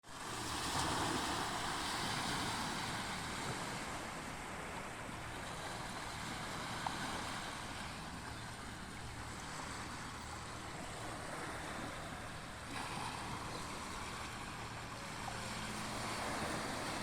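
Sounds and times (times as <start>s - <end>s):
ocean waves washing in: 0.1s - 17.0s.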